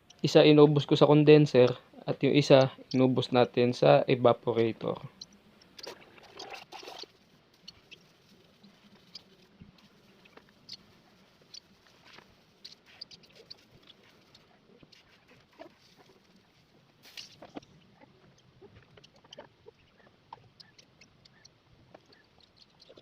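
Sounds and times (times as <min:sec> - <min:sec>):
scratching and rustling: 0:05.6 - 0:23.0
light clicks and ticks: 0:17.1 - 0:23.0.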